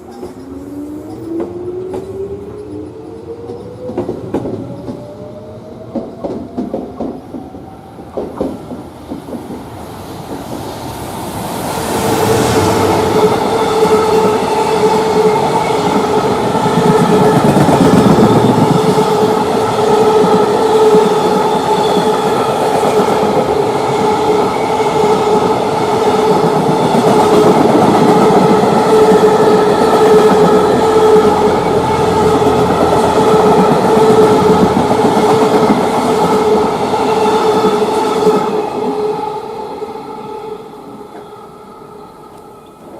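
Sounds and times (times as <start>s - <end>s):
freight train rolling past: 0.0s - 42.9s.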